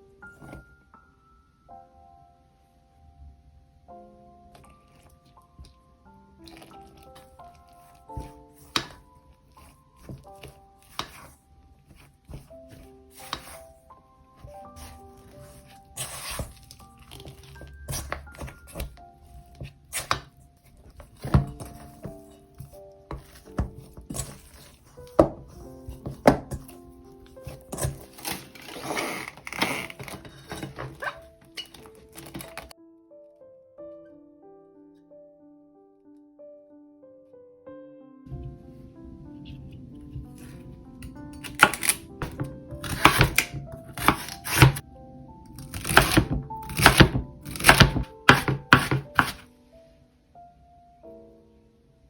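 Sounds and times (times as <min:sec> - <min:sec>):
background music: 0:00.0 - 0:52.0
knocks and scrapes in bowl: 0:14.4 - 0:26.8.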